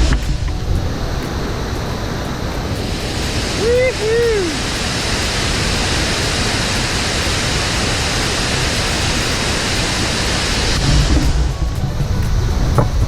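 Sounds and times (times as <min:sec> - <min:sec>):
waterfall rushing: 0:00.0 - 0:13.0
low rumble: 0:10.8 - 0:13.0.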